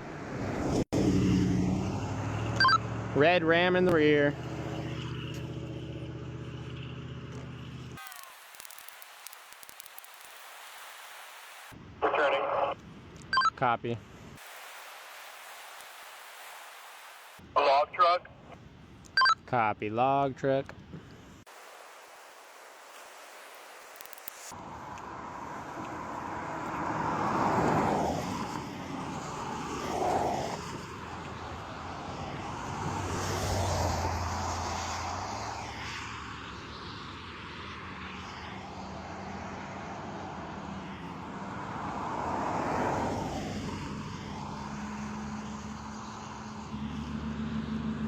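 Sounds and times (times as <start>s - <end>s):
vehicles passing by: 0.0s - 10.4s, 24.2s - 48.0s.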